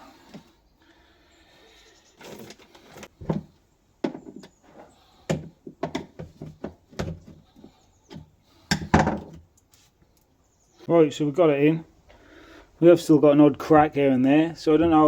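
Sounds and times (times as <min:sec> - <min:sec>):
tools knocking and scraping: 0:02.2 - 0:09.4.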